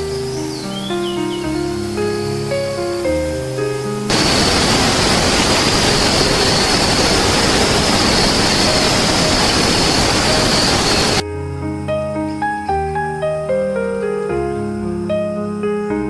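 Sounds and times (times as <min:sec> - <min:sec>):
soft piano music: 0:00.0 - 0:04.8, 0:08.7 - 0:16.0
loud rushing hiss: 0:04.1 - 0:11.2.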